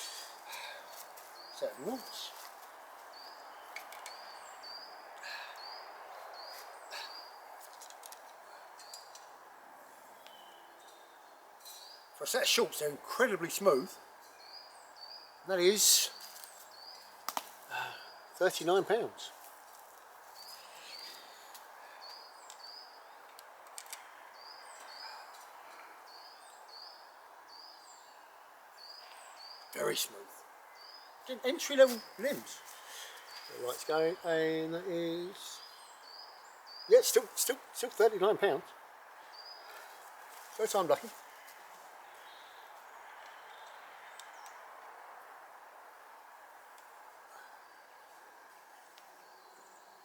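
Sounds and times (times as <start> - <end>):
steady outdoor hiss: 0.0 - 50.0
bird calling in paired notes: 36.8 - 38.7.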